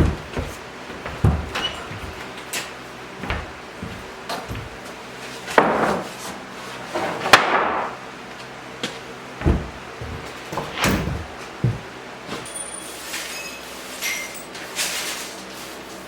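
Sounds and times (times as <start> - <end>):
objects knocking and banging: 0.0 - 2.4, 9.4 - 12.5.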